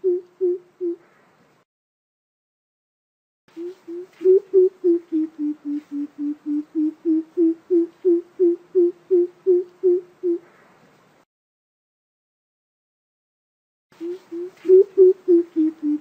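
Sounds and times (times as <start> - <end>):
bird deep hoots: 0.0 - 1.1, 3.6 - 10.6, 14.0 - 16.0.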